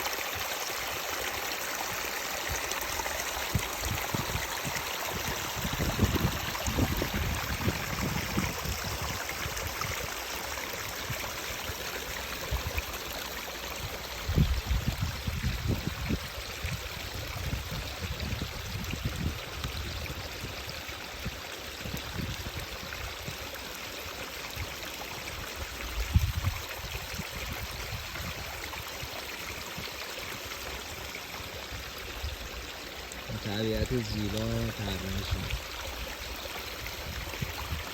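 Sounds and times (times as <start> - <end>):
running water rushing: 0.0 - 37.9
wind buffeting microphone: 3.5 - 10.0, 14.2 - 20.2, 25.8 - 28.6, 34.8 - 35.7.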